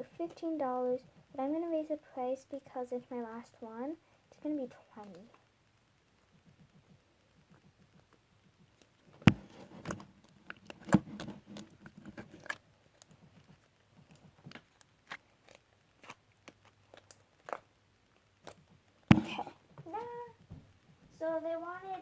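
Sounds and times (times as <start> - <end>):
handling clicks and taps: 8.8 - 14.9, 19.1 - 19.5
sharp knocks: 9.3 - 10.0, 19.1 - 19.5.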